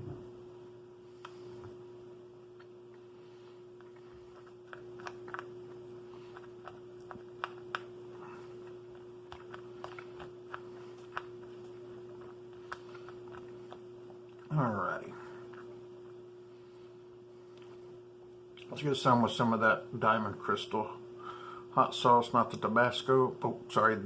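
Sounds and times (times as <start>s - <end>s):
steady low hum: 0.0s - 24.0s
meal pouch clicks and taps: 6.3s - 7.9s, 8.6s - 13.8s.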